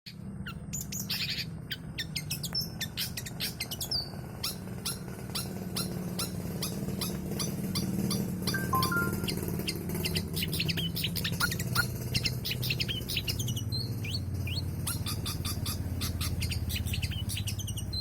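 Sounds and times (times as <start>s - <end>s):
shrike singing high chirps: 8.5s - 9.8s.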